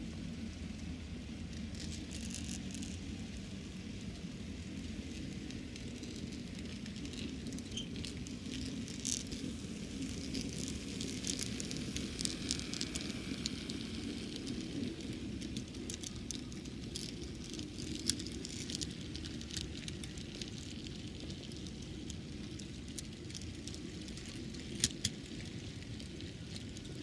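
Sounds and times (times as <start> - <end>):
model train motor hum: 0.0 - 27.0
wheels clicking over track: 0.2 - 27.0.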